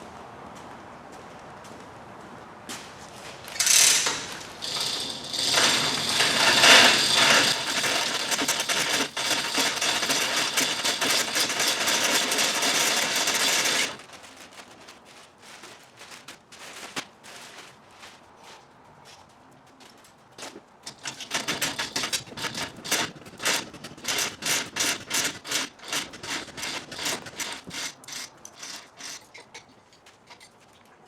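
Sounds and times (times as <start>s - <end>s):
mechanical rattling and clicking: 3.5s - 14.8s, 20.8s - 29.7s.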